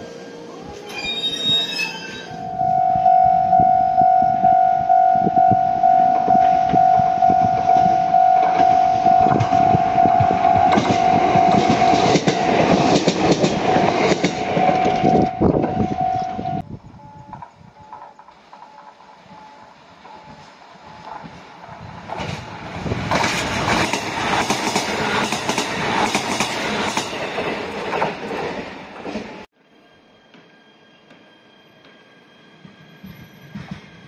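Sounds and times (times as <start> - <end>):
electric train passing: 0.0 - 34.0
pulsing high tone: 0.1 - 17.3
train wheel clatter: 6.4 - 15.8, 17.1 - 29.5, 32.6 - 34.0.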